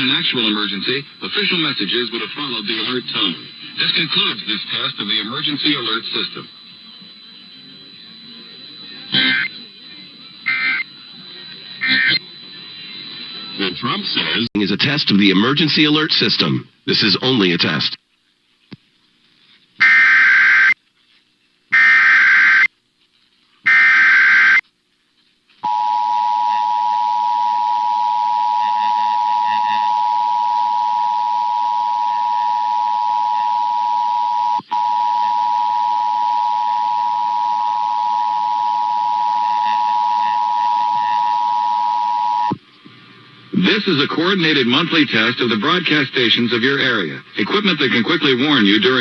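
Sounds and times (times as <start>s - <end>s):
steady two-tone attention signal: 0.0s - 14.0s, 25.7s - 42.6s
screeching data bursts: 8.8s - 9.8s, 10.4s - 14.0s.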